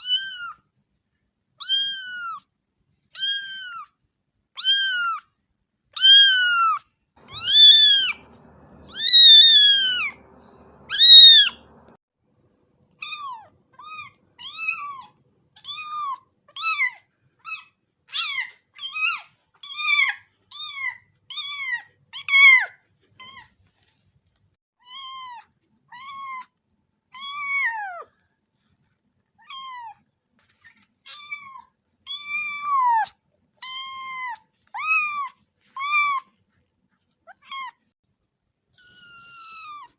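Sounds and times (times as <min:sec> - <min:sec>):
cat meowing: 0:00.0 - 0:00.6, 0:01.6 - 0:02.4, 0:03.2 - 0:03.9, 0:04.6 - 0:05.2, 0:06.0 - 0:11.8, 0:13.0 - 0:23.5, 0:27.2 - 0:28.1, 0:29.4 - 0:30.0, 0:31.1 - 0:36.2, 0:38.8 - 0:39.9.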